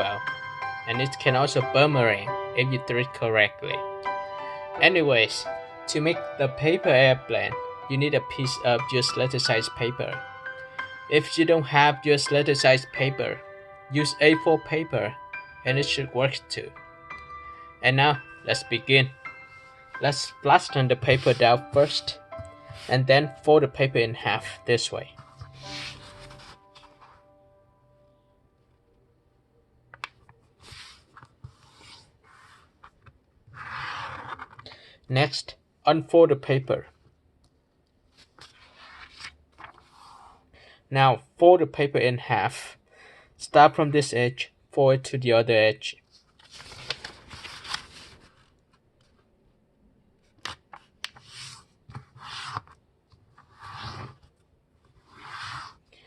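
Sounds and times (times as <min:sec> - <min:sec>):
paper being folded and creased: 0:25.2 - 0:27.2, 0:30.4 - 0:34.7, 0:38.0 - 0:40.4, 0:46.0 - 0:49.3, 0:50.2 - 0:55.8
brushing strokes on paper: 0:25.5 - 0:27.2, 0:30.6 - 0:32.8, 0:39.7 - 0:40.4, 0:55.0 - 0:55.8.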